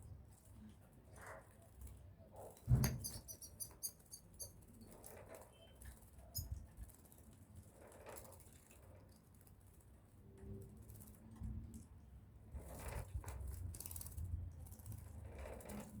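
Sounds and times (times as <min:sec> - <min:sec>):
thump: 0:02.7 - 0:03.0.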